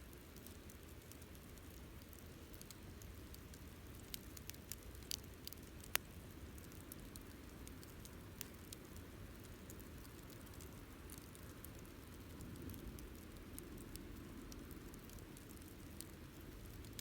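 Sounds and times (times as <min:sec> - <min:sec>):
campfire crackling: 0:00.0 - 0:17.0
low rumble of burning fire: 0:00.0 - 0:17.0.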